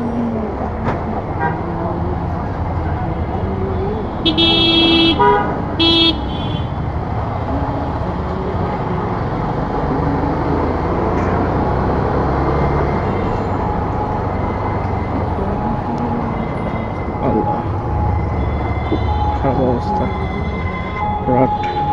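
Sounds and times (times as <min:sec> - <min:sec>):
engine and road noise: 0:00.0 - 0:21.9
vehicle horn honking: 0:02.8 - 0:07.9, 0:12.5 - 0:21.9.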